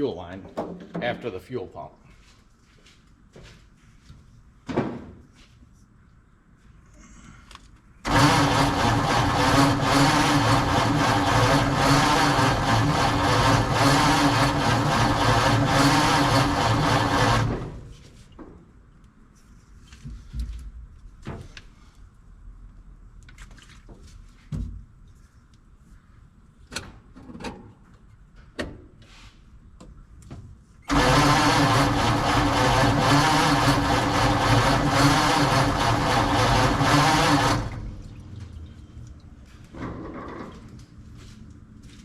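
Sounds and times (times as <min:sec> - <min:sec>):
truck engine cranking: 0:08.0 - 0:17.9, 0:30.8 - 0:38.1.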